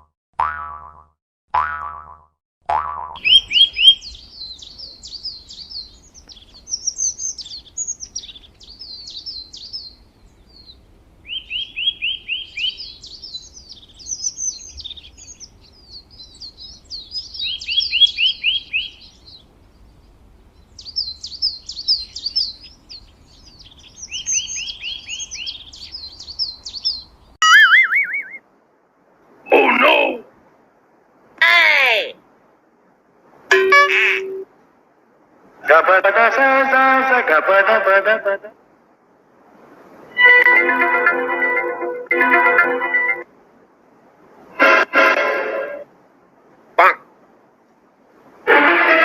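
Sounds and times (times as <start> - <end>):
songbird singing: 2.9 - 28.4, 29.4 - 30.2.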